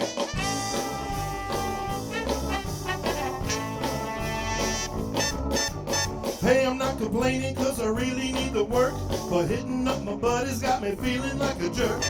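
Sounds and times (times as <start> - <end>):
brass section holding notes: 0.0 - 6.4
bass and drums: 0.0 - 12.0.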